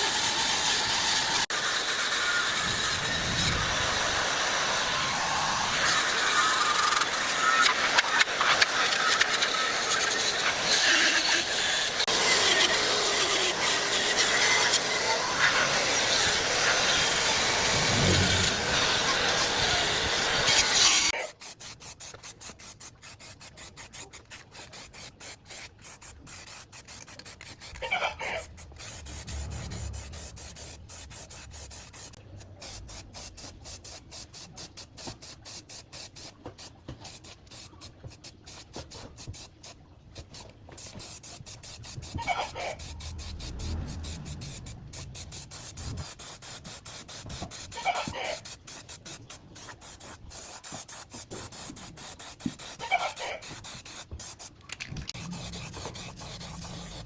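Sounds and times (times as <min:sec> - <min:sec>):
hand scraping: 0:16.7 - 0:19.5, 0:20.6 - 0:33.1, 0:40.2 - 0:57.0.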